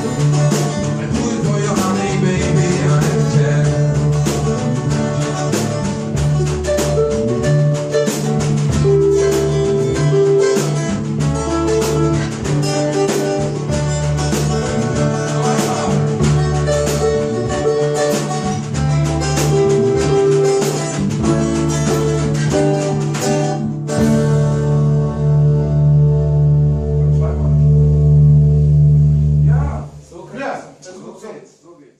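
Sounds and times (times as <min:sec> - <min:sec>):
drums and cymbals: 0:00.0 - 0:25.0
electric guitar line: 0:00.0 - 0:30.0
bass notes: 0:00.0 - 0:30.8.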